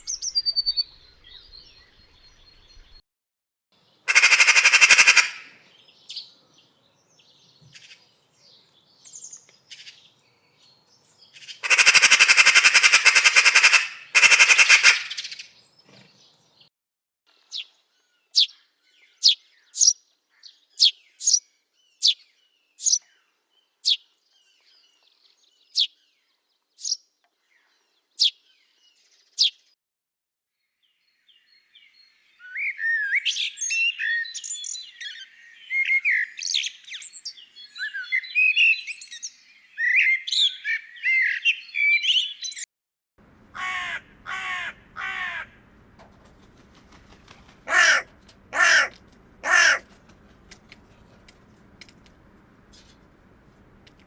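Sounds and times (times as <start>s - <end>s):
birds chirping and twittering: 0.0s - 3.0s, 3.9s - 16.7s, 17.4s - 29.6s, 31.0s - 42.6s, 43.2s - 54.0s
thin high bird calls: 0.0s - 3.0s, 43.3s - 54.0s
crow cawing: 4.1s - 5.6s, 11.6s - 15.2s, 43.2s - 53.9s.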